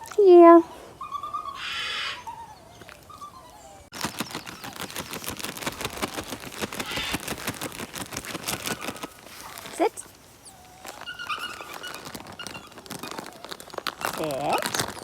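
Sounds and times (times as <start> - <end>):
puppy whimpering: 0.0 - 5.0, 8.9 - 15.0
rapid clicks and crackles: 3.9 - 9.9, 10.8 - 15.0.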